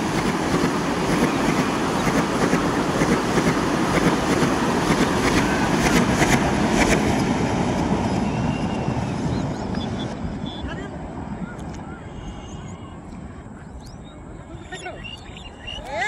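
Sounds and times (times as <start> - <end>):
train wheels rumbling on rails: 0.0 - 12.7.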